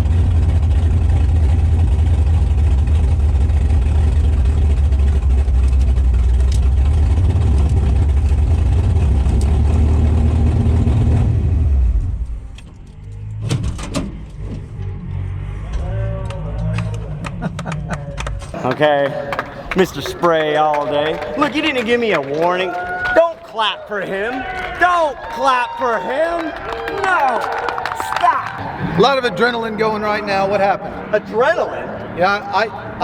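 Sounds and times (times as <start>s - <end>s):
pickup truck engine running loud: 0.0s - 22.2s.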